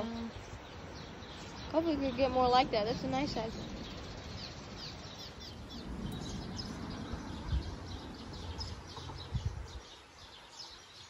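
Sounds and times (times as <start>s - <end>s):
birds chirping: 0.0s - 11.0s
low rumble: 0.5s - 9.8s.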